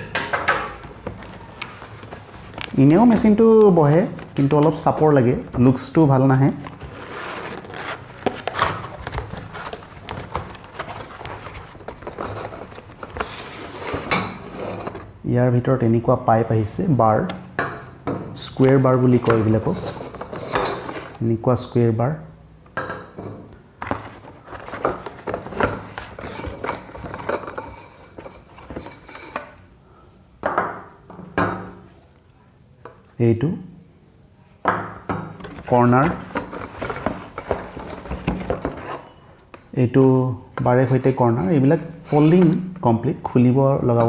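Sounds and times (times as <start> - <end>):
packing rustling: 6.5 - 13.9, 23.8 - 27.5.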